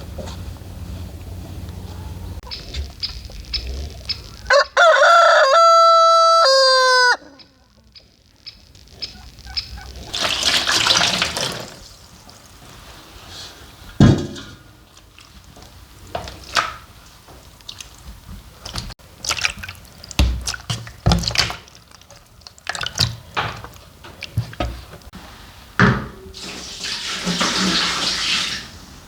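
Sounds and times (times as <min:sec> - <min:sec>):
liquid pouring: 0:10.1 - 0:12.7.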